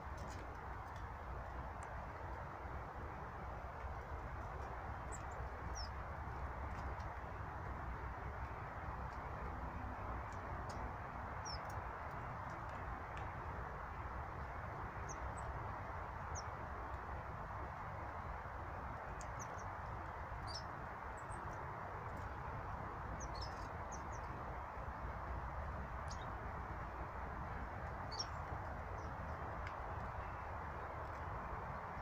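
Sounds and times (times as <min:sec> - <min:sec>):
small birds chirping: 0:04.5 - 0:07.2, 0:10.2 - 0:13.3, 0:18.0 - 0:25.0, 0:25.6 - 0:26.8, 0:27.4 - 0:32.0.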